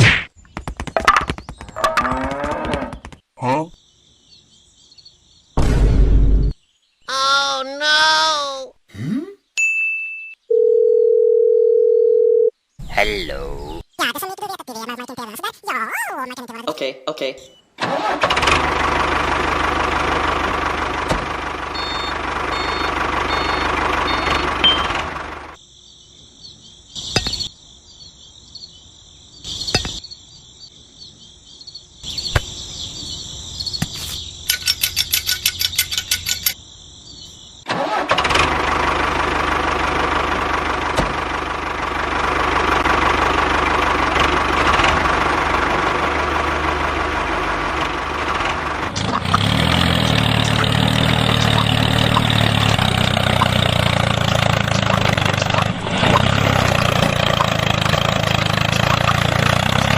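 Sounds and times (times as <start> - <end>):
engine running: 17.8 - 25.6, 37.7 - 59.9.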